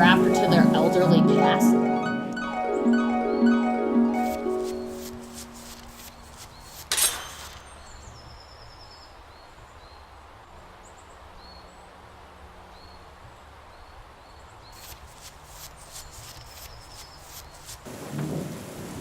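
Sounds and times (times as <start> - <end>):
plucked harp music: 0.0 - 6.0
faint outdoor background: 0.0 - 18.2
small high chirps: 4.2 - 8.5
sharp hit: 6.8 - 8.2.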